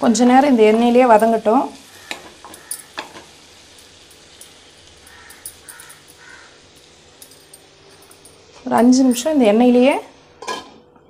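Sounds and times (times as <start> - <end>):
chicken sizzling in a pan: 0.0 - 10.7
crow cawing: 1.9 - 3.0, 5.0 - 6.6
spoon clicking against pan: 2.0 - 3.2, 3.8 - 8.2.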